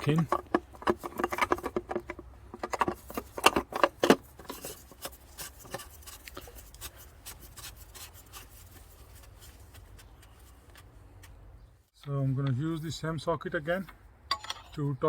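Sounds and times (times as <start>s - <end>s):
sharp knocks and clicks: 0.0s - 4.2s.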